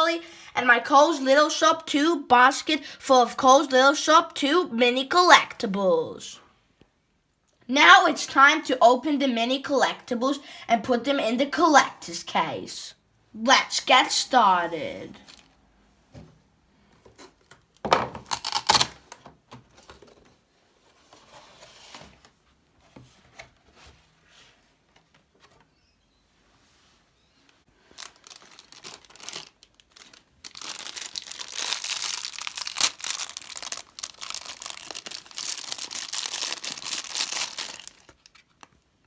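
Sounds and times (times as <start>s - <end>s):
plastic packet rustling and tapping: 17.1s - 20.4s, 27.8s - 38.9s
plastic wrapper crinkling and tearing: 18.2s - 19.1s, 27.8s - 38.8s.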